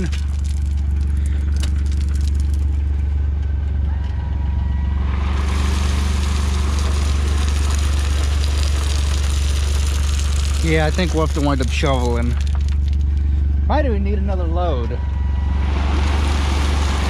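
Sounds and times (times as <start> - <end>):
gravel pouring out: 0.0 - 3.1, 5.2 - 13.3, 15.8 - 17.0
utility vehicle engine running: 0.0 - 17.0.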